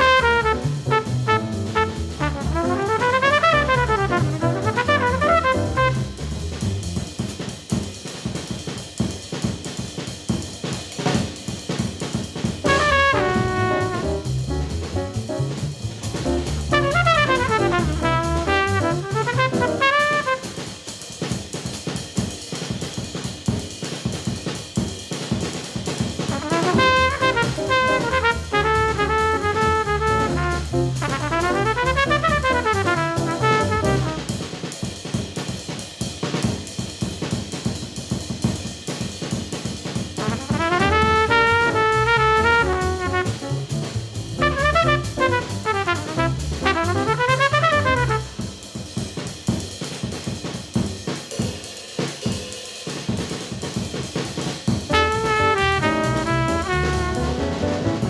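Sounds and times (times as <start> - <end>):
trumpet phrases: 0.0 - 6.3, 12.6 - 14.5, 16.2 - 20.8, 26.3 - 34.4, 40.2 - 43.7, 44.3 - 48.5, 54.9 - 58.0
drum-kit breaks: 0.0 - 7.4, 12.1 - 20.8, 26.0 - 34.8, 40.2 - 48.8, 53.7 - 58.0.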